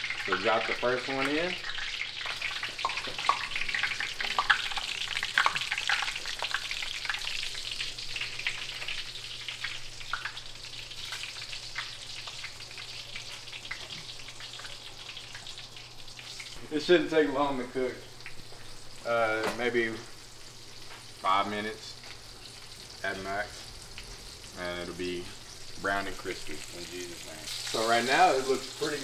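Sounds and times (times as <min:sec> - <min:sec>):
hot oil sizzling and popping: 0:00.0 - 0:29.0.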